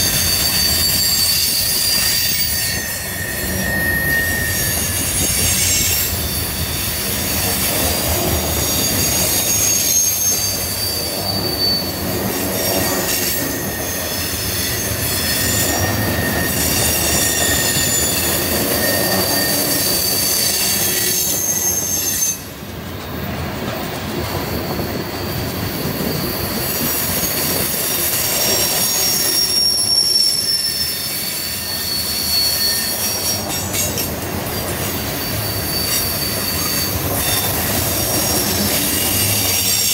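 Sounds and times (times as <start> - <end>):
steel wheels squealing on rail: 0.0 - 39.9.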